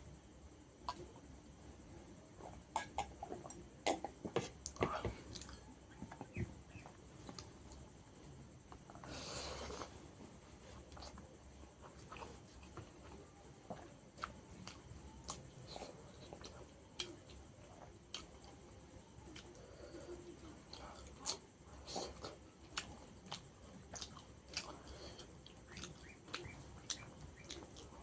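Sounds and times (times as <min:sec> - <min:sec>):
breathy hiss: 0:08.9 - 0:11.2
wet chewing smacks and clicks: 0:13.8 - 0:28.0.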